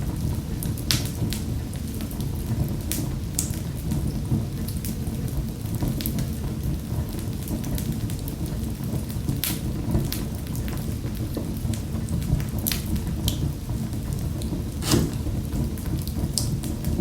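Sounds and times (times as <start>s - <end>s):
fire burning in a fireplace: 0.0s - 17.0s
fire crackles and pops: 11.6s - 17.0s.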